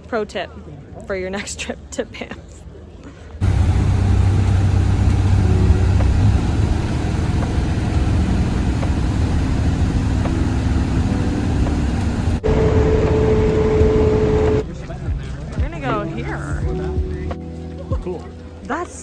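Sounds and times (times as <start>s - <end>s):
steady hum: 3.4s - 14.6s
vehicle engine and road noise: 3.4s - 14.8s.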